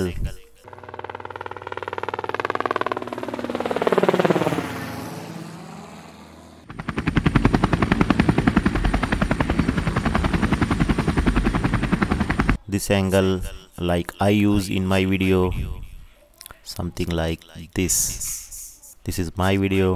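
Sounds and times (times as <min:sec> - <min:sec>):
helicopter rotor chop: 0:00.6 - 0:12.6.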